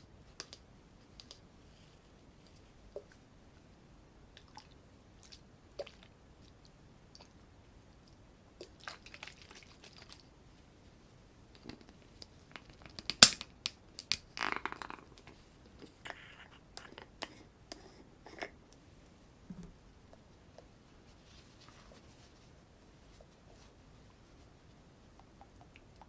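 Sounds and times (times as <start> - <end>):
rustling: 20.4 - 25.2.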